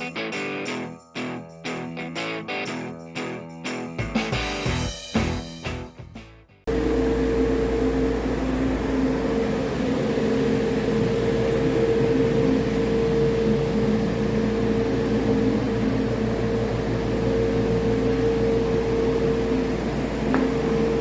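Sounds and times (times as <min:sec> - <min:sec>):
diesel engine running: 0:06.7 - 0:21.0
steady whine: 0:06.7 - 0:21.0.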